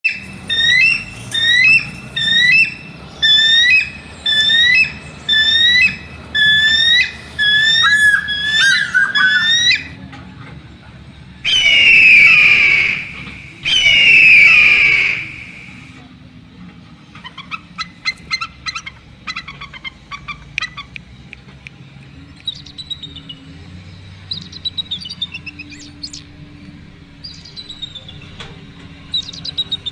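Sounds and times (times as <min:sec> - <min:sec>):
bird of prey screaming calls: 0:00.1 - 0:10.0, 0:11.4 - 0:16.0, 0:24.3 - 0:26.2, 0:27.2 - 0:28.3, 0:29.1 - 0:29.9
bird of prey whistled calls: 0:00.1 - 0:10.0, 0:11.4 - 0:16.0, 0:22.4 - 0:23.4, 0:24.3 - 0:26.2, 0:27.2 - 0:28.4, 0:29.1 - 0:29.9.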